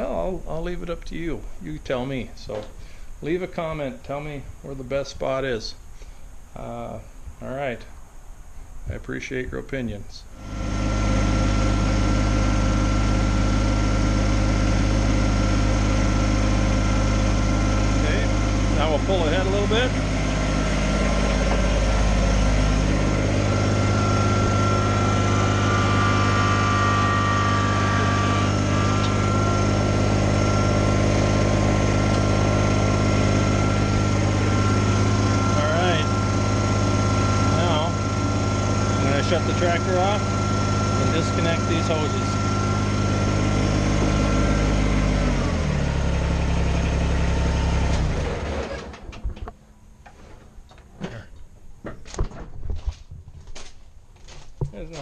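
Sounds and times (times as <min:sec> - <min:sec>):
tractor diesel engine running: 0:10.3 - 0:51.8
thin high whine: 0:18.0 - 0:44.7.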